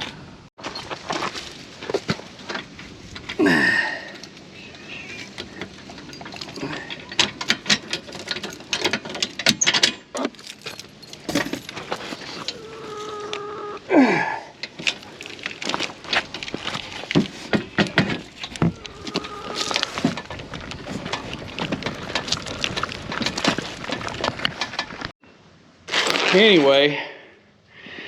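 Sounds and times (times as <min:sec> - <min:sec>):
metal chain clicks and clanks: 0:05.2 - 0:12.9.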